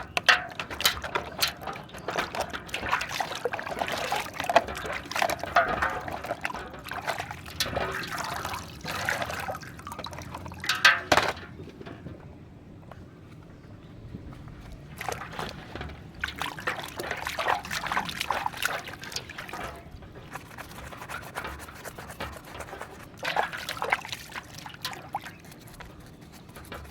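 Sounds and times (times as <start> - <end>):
water splashing and trickling: 0.0 - 12.1, 14.2 - 26.9.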